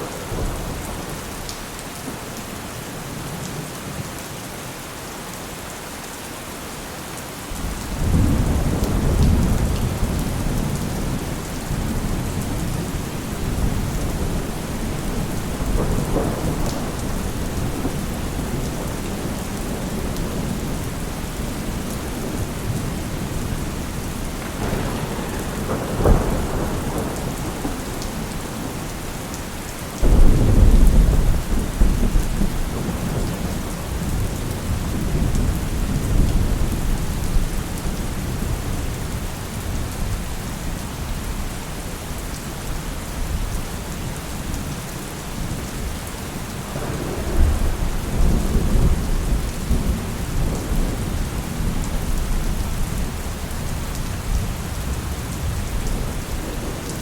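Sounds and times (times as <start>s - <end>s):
heavy rain: 0.0s - 57.0s
thunder rumbling: 7.6s - 40.8s, 45.4s - 57.0s.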